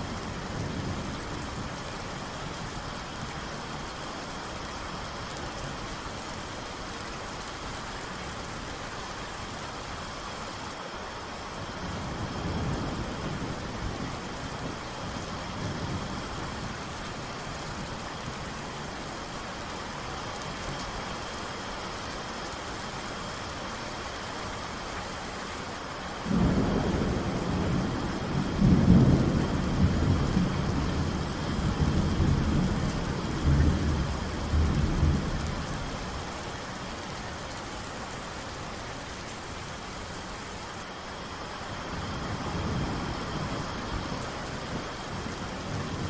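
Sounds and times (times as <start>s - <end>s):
steady rain falling: 0.0s - 46.0s
thunder rumbling: 26.3s - 35.6s.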